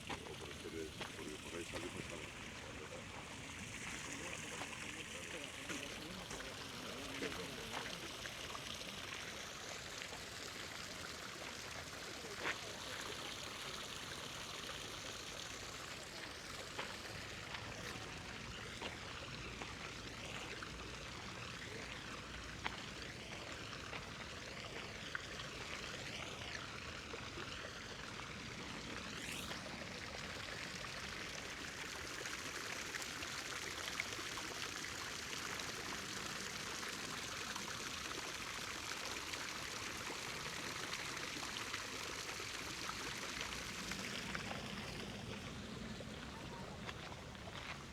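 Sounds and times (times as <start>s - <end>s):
fountain water splashing: 0.0s - 47.9s.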